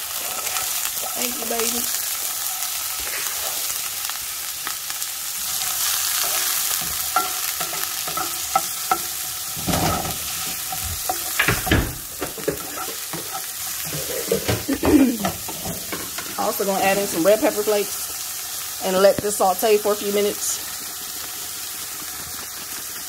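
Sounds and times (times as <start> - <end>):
onion sizzling in a frying pan: 0.0 - 23.0
spatula scraping and tapping pan: 6.2 - 17.2.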